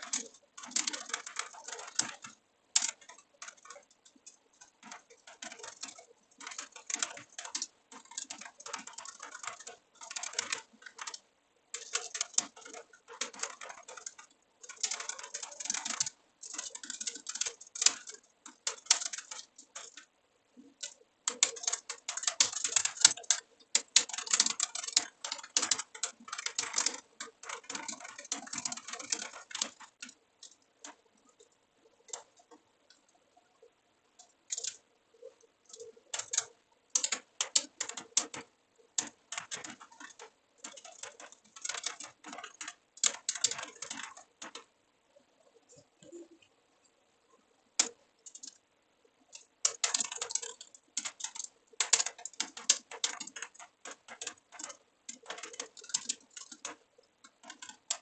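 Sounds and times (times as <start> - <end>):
computer keyboard typing: 0.0 - 58.0.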